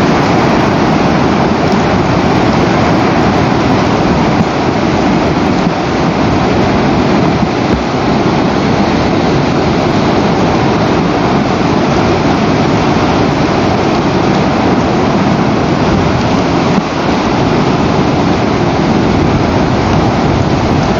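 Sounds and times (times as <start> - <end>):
wind buffeting microphone: 0.0 - 20.9.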